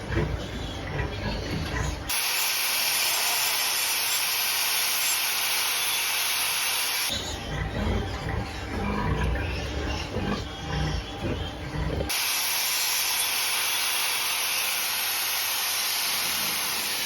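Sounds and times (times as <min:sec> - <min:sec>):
barn noise: 0:00.0 - 0:02.1, 0:07.1 - 0:12.2.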